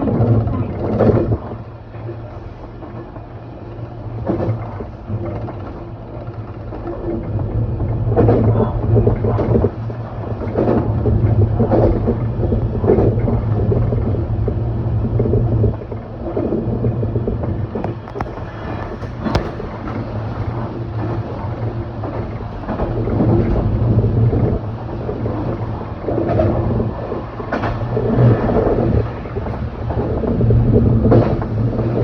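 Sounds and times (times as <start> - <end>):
electric train hum: 0.0 - 32.0
train knocks and clatter: 7.9 - 32.0.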